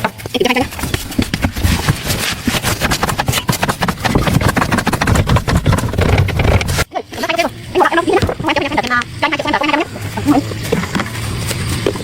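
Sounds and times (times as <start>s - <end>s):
engine clattering: 1.0s - 6.9s.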